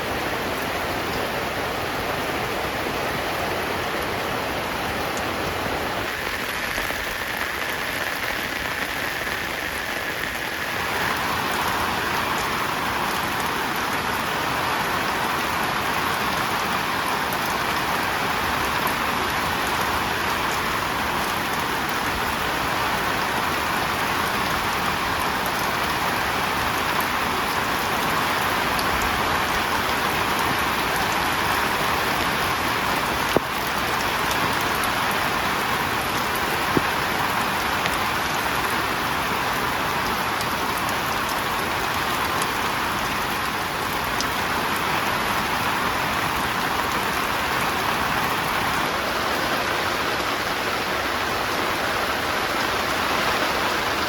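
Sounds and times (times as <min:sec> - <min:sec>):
heavy rain on a tent: 0:00.0 - 0:54.0.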